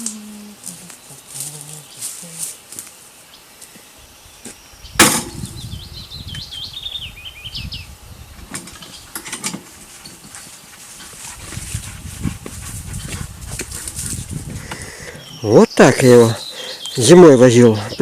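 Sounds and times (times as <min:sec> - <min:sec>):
footsteps through undergrowth: 0:00.0 - 0:04.6, 0:09.6 - 0:14.6
songbird chirping: 0:00.0 - 0:11.3, 0:12.5 - 0:18.0
sharp knock: 0:05.0 - 0:05.4.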